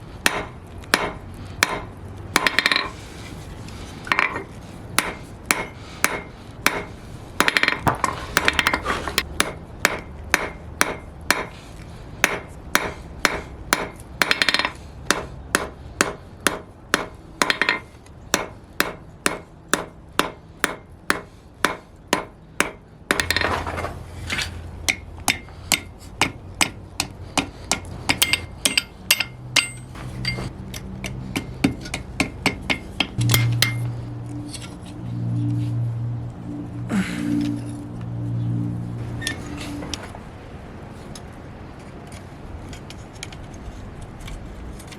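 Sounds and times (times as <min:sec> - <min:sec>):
hammer striking steel on anvil: 0:00.2 - 0:03.0, 0:04.1 - 0:08.8, 0:09.4 - 0:11.5, 0:12.2 - 0:23.6, 0:24.8 - 0:34.8.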